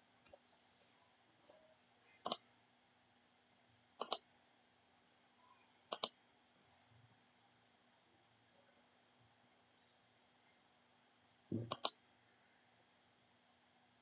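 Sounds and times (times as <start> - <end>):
faint steady hum: 0.0 - 14.0
computer mouse double clicks: 4.0 - 4.2, 5.9 - 6.1, 11.6 - 12.0.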